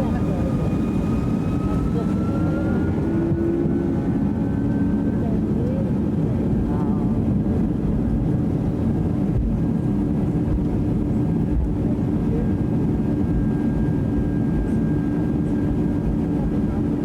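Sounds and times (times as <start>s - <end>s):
jet engine cabin rumble: 0.0s - 17.0s.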